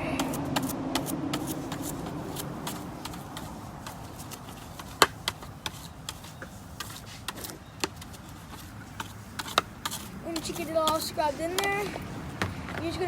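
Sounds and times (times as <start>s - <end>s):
scouring pad scrubbing helmet: 0.2s - 7.3s, 8.2s - 13.0s.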